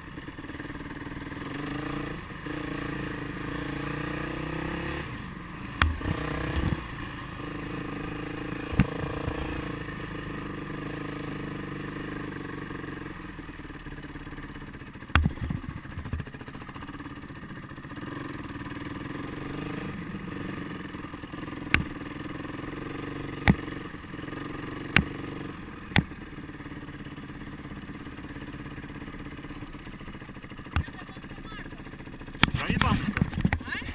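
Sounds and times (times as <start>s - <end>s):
motorcycle engine running: 0.0s - 33.9s
sharp knocks and rattles: 15.1s - 16.4s.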